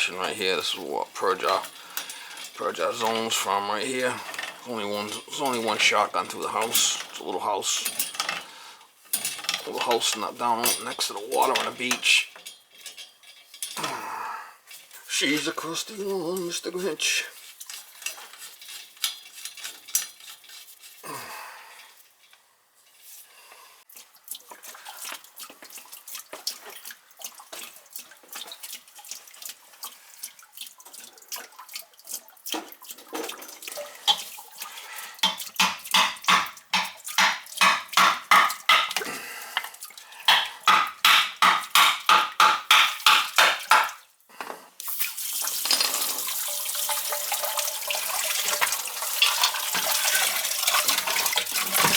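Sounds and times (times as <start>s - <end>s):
metal tools clinking on piping: 0.0s - 14.0s, 14.8s - 21.0s, 45.6s - 51.9s
running water: 0.0s - 22.1s, 23.9s - 44.2s, 44.8s - 51.9s.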